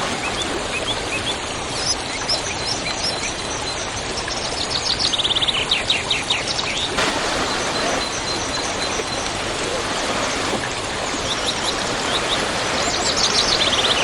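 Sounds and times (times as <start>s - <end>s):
birds chirping: 0.0s - 14.0s
waterfall rushing: 7.0s - 14.0s.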